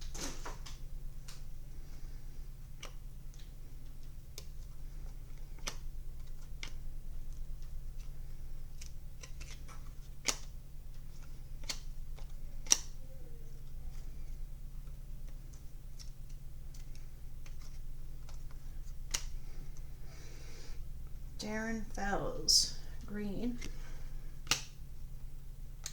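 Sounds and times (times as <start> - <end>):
low steady hum: 0.0 - 25.9
trading cards clicking and tapping: 8.8 - 13.0.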